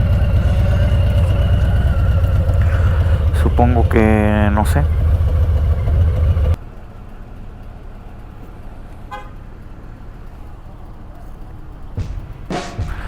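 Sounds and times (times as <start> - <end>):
car horn toot: 0.0 - 6.4, 9.1 - 9.6
street traffic rumble: 0.0 - 13.0.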